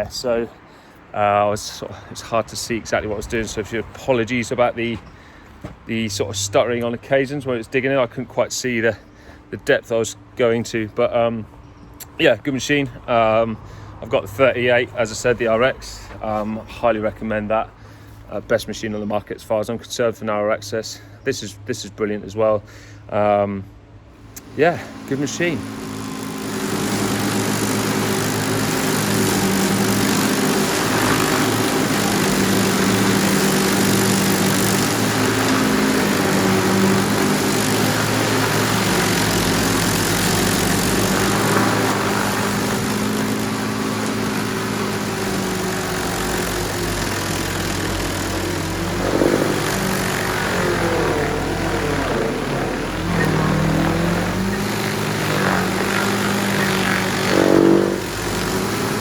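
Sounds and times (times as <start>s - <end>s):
stump grinder engine running: 23.8s - 59.0s
wood grinding noise: 24.2s - 59.0s.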